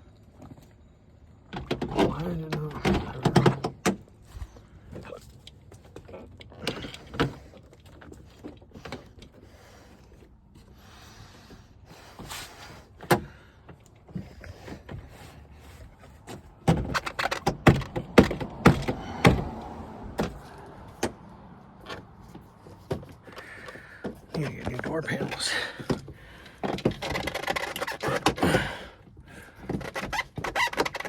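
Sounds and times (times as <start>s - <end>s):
hands clicking and rattling door parts: 1.4s - 10.4s, 11.5s - 31.0s
loud knocks and clatters: 16.6s - 19.6s.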